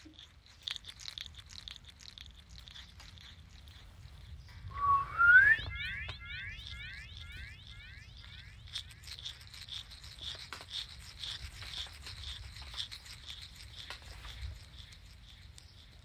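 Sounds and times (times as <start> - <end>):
low rumble: 4.6 - 7.7
small bird high note: 4.7 - 7.1.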